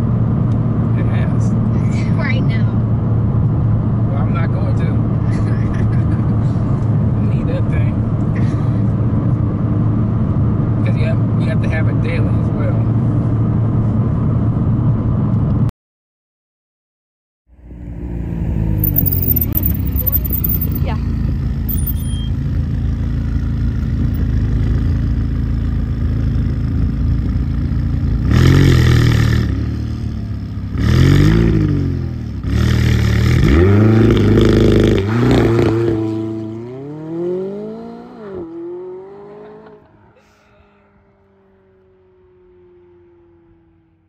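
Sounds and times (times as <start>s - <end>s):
car engine revving: 17.9s - 21.0s.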